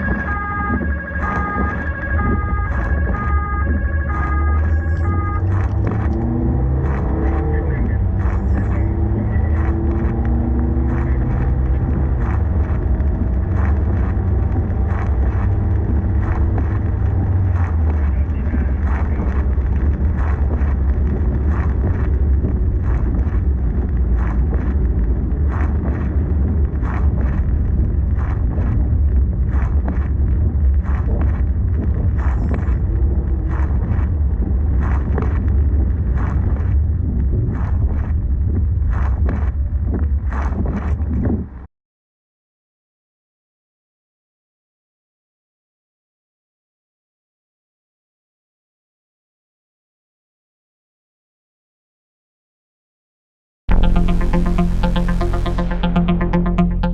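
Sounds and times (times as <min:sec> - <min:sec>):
engine and road noise rumble: 0:00.1 - 0:29.8.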